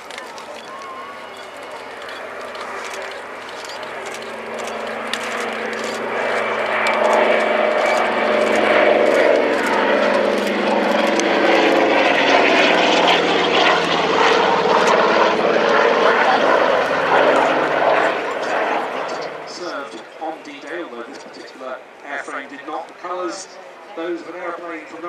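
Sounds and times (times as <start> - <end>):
propeller aircraft engines droning: 0.0 - 25.0.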